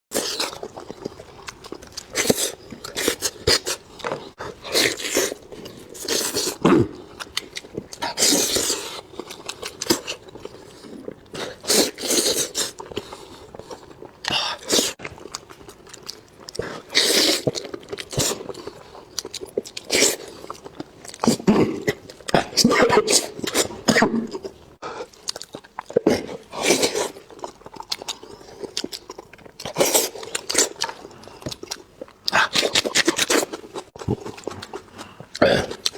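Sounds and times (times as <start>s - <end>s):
person crunching and chewing: 0.1s - 35.9s.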